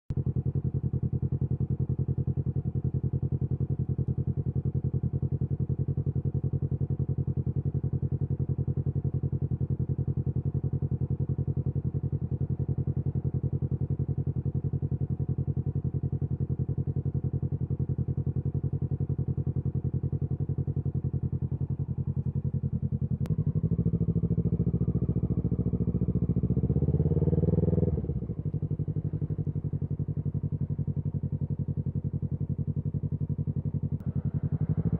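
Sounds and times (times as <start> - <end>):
motorcycle engine idling: 0.1 - 34.9
motorcycle engine revving: 18.7 - 34.9.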